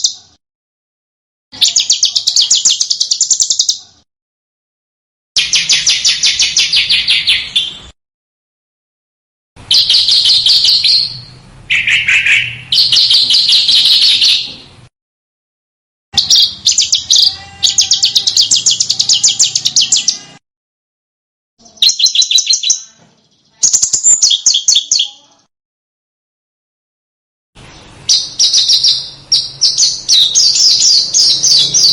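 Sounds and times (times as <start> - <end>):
songbird trilling: 1.6 - 3.8, 16.2 - 20.3, 21.6 - 25.2, 27.8 - 31.9.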